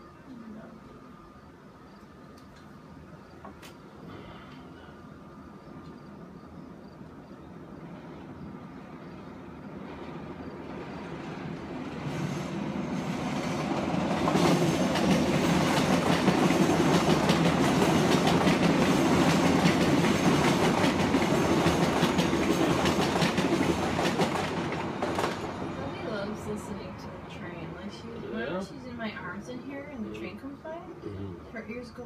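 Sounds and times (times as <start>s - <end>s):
train wheels clattering on rail: 9.0s - 26.3s.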